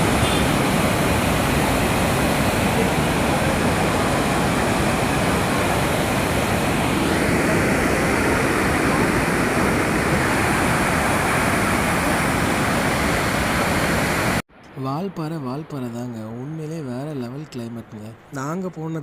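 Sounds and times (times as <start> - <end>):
loud rushing noise: 0.0 - 14.4.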